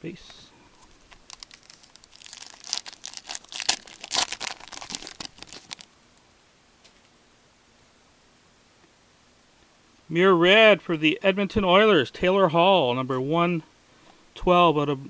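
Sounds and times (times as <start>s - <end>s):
wrapper torn open and crinkled: 0.8s - 5.9s.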